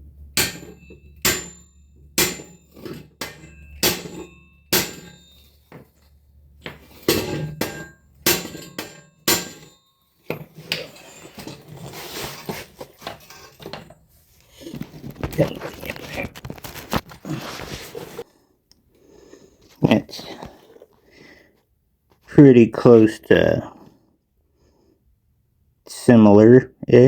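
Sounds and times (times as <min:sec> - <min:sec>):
rattling metal noise: 0:00.0 - 0:17.0
hammer striking steel: 0:00.2 - 0:05.9, 0:06.6 - 0:11.5.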